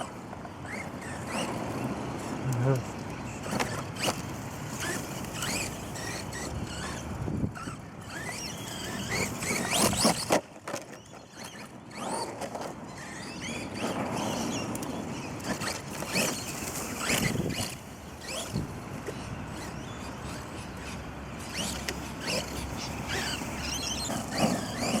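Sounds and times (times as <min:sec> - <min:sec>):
electric motor whining: 0:13.0 - 0:25.0.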